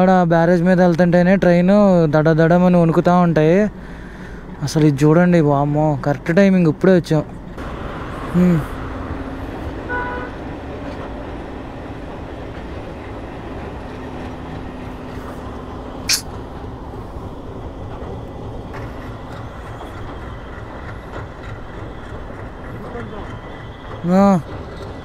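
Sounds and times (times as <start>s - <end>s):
train rumbling over bridge: 0.0s - 25.0s
sharp click: 16.1s - 16.4s.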